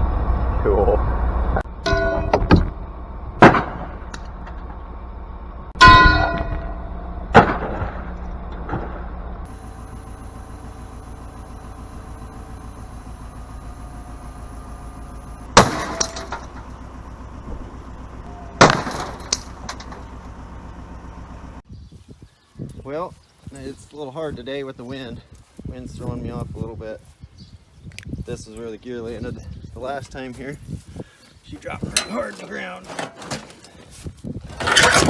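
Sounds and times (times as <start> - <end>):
engine hum: 0.0 - 21.8, 27.9 - 35.0
heavy steel gear clanging on impact: 1.6 - 5.0, 5.8 - 9.5, 15.6 - 20.2, 31.8 - 35.0.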